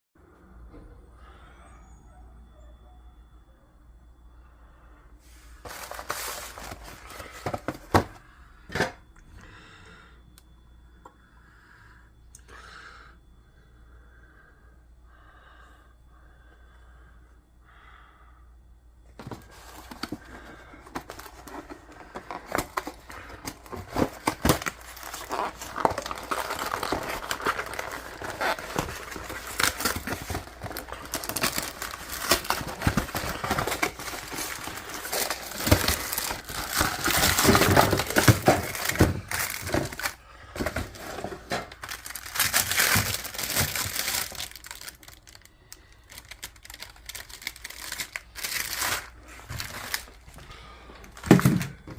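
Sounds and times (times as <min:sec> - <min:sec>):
packaging crinkling: 0:05.6 - 0:08.2, 0:19.2 - 0:51.9.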